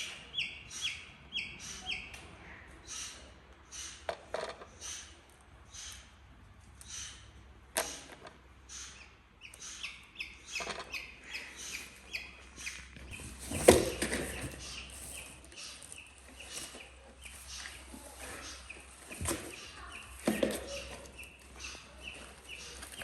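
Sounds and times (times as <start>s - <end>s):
eaglet chirping: 8.7s - 17.8s.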